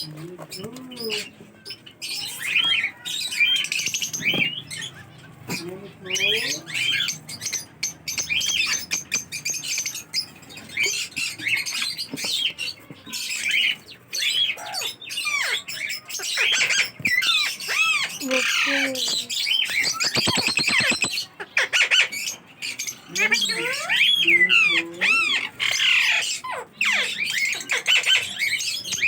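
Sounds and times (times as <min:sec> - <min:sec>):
parrots squawking and chirping: 0:00.0 - 0:29.0.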